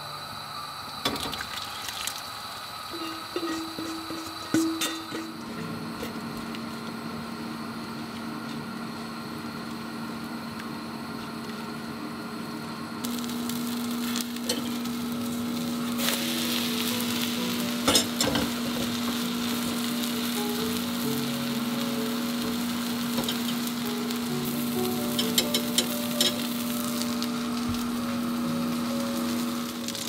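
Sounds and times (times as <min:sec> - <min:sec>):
egg sizzling in frying pan: 0:01.0 - 0:06.6, 0:13.0 - 0:30.0
spatula stirring: 0:03.0 - 0:05.3.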